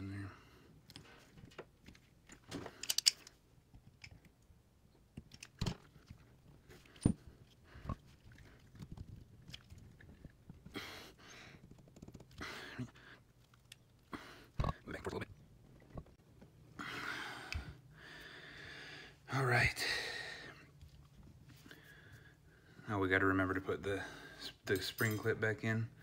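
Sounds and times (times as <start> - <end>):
metal parts clicking and knocking: 1.8 - 4.4, 5.2 - 6.2, 24.7 - 25.4.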